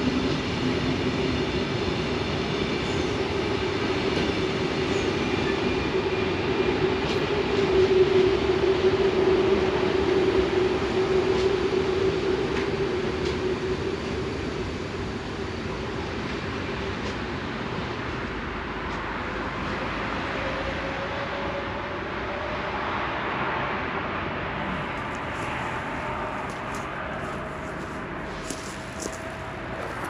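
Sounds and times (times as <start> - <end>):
train wheels rumbling: 24.6 - 30.0.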